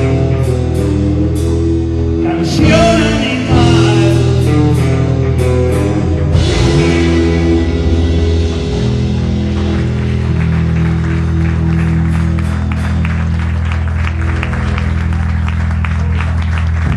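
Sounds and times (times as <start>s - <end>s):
electric guitar and bass chord ringing: 0.0s - 16.9s
people clapping: 8.8s - 16.9s.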